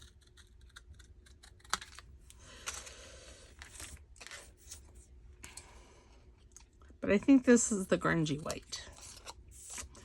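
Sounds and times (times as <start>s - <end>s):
paper rustling and sliding: 2.6s - 5.0s.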